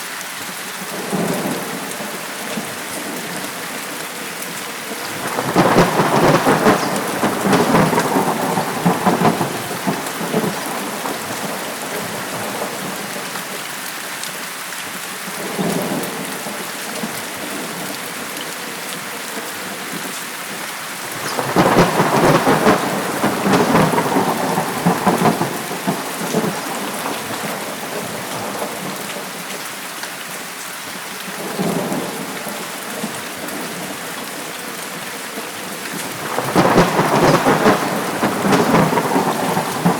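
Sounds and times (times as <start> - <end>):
steady rain: 0.0 - 39.9
rolling thunder: 4.8 - 13.3, 21.0 - 29.0, 35.8 - 39.9.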